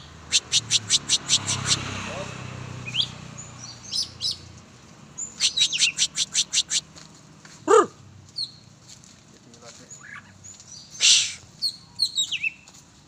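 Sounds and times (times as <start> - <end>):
bird chirping: 0.0 - 2.2, 2.8 - 4.6, 5.2 - 6.9, 7.7 - 8.7, 9.8 - 12.7.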